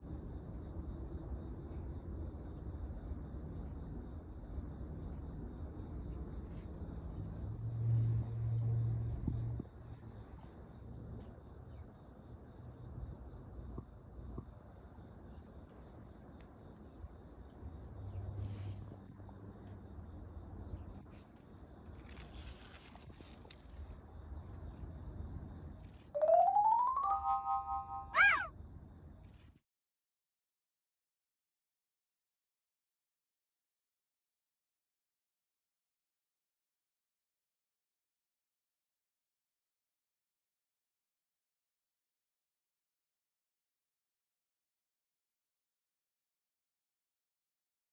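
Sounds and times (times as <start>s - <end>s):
crickets chirping: 0.0s - 29.6s
low outdoor rumble: 2.4s - 11.2s
rising tone: 26.2s - 28.4s.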